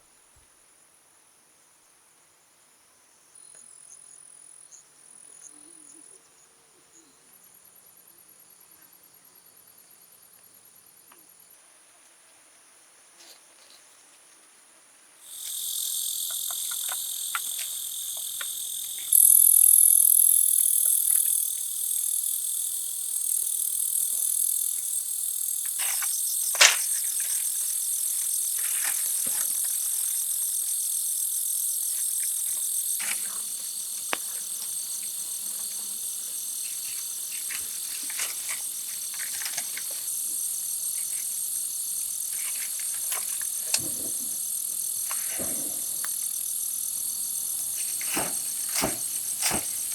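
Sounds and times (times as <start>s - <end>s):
insects chirring: 15.2s - 49.9s.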